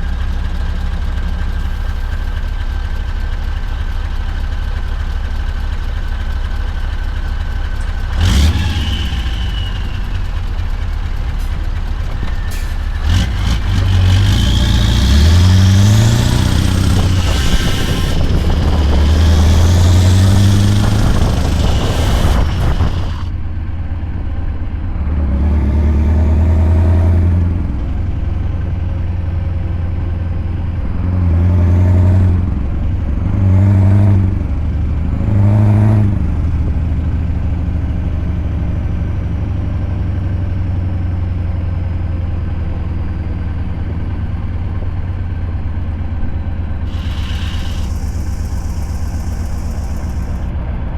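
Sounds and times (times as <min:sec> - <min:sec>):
diesel truck engine pulling: 0:00.0 - 0:50.9.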